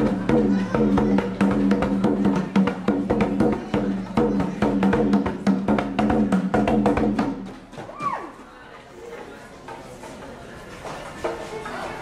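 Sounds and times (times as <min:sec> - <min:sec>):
hand drum slaps and bass tones: 0:00.0 - 0:07.5.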